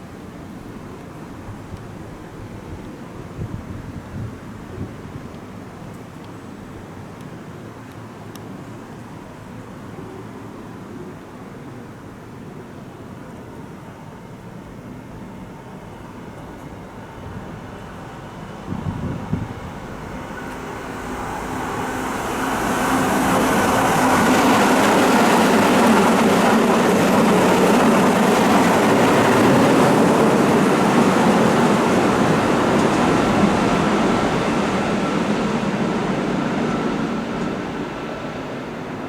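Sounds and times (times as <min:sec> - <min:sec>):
electric train passing: 0:08.2 - 0:39.0.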